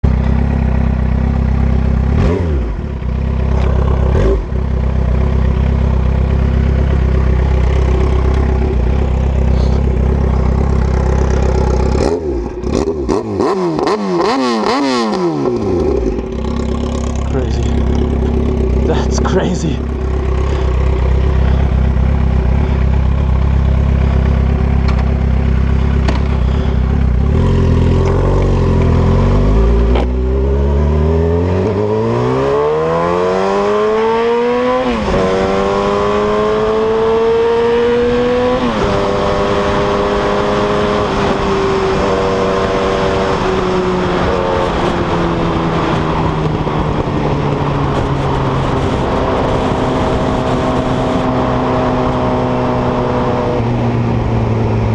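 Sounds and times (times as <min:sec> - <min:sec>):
constant rush of noise: 0:00.1 - 0:14.1, 0:15.0 - 0:30.2
motorcycle engine revving: 0:00.1 - 0:54.9.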